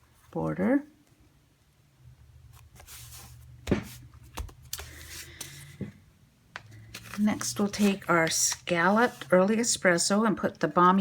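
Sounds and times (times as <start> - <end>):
paper rustling and sliding: 2.5 - 6.0, 6.6 - 9.4.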